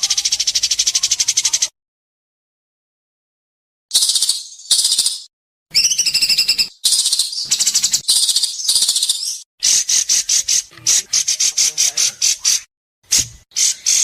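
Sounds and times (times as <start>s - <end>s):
bird singing: 3.9s - 12.7s, 13.5s - 14.0s.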